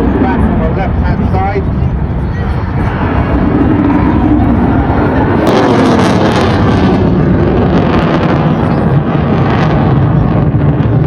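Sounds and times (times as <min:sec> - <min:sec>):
jet engine roaring: 0:00.0 - 0:11.0.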